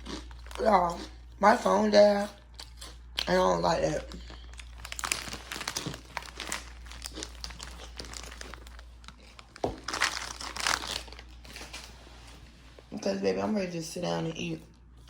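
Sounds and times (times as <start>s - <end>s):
crinkling and rustling: 4.6s - 13.0s.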